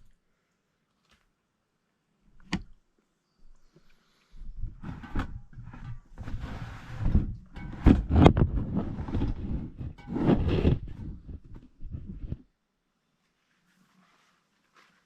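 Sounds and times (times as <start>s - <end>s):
loud thumps: 7.1s - 12.1s.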